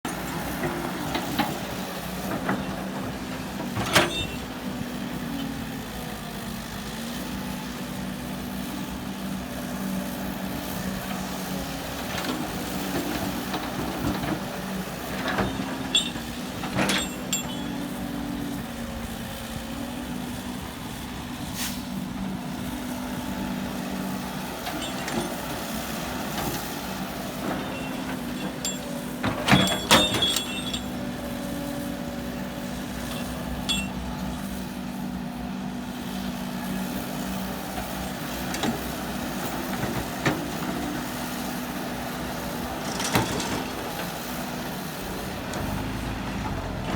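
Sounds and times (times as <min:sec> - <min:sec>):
diesel engine running: 0:00.0 - 0:46.9
sharp metal clanks: 0:15.9 - 0:17.7, 0:27.7 - 0:31.0, 0:33.6 - 0:34.0.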